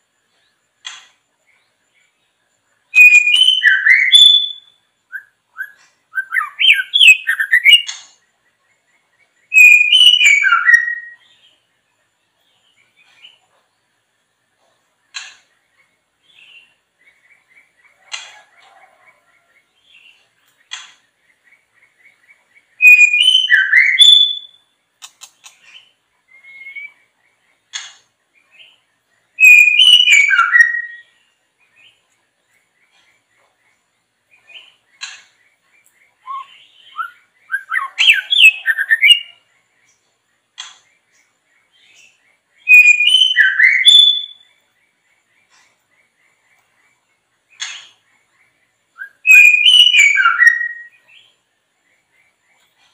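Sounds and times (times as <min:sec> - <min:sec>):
faint bird chirps: 0:00.0 - 0:52.9
songbird whistled phrases: 0:02.9 - 0:07.9, 0:09.5 - 0:11.2, 0:22.8 - 0:24.6, 0:26.3 - 0:27.0, 0:29.4 - 0:31.2, 0:36.2 - 0:39.4, 0:42.7 - 0:44.5, 0:49.0 - 0:51.1.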